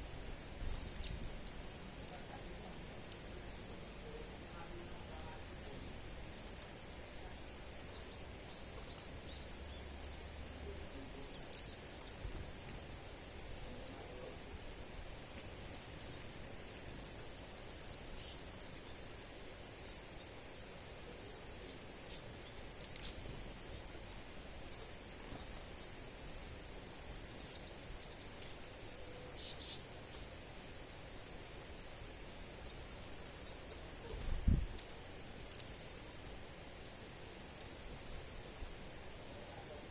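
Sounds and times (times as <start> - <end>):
faint steady hiss: 0.0 - 39.9
small birds chirping: 0.0 - 39.9.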